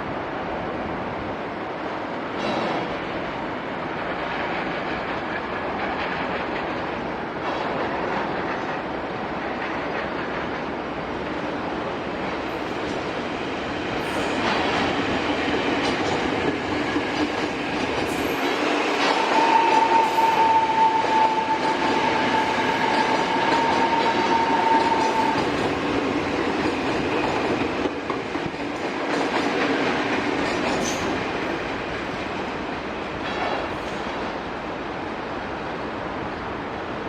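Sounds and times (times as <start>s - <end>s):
train wheels clattering on rails: 1.6s - 35.0s.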